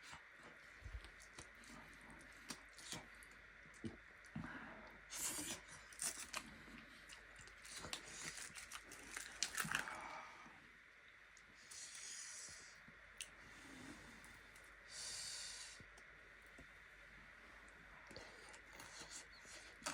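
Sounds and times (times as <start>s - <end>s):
person chewing food: 0.1s - 4.4s.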